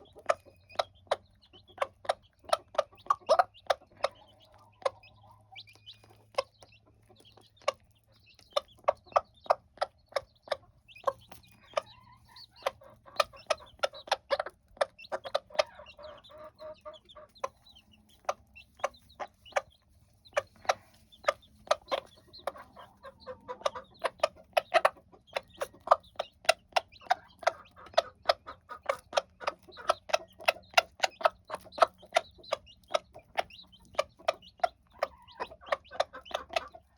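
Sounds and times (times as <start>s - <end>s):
hen clucking: 0.0s - 36.9s.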